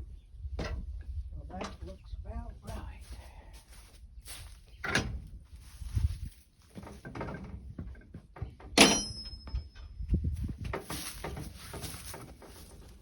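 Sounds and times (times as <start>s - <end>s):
thumps and knocks: 0.6s - 1.0s, 6.7s - 12.9s
sharp metallic clang: 8.8s - 9.9s.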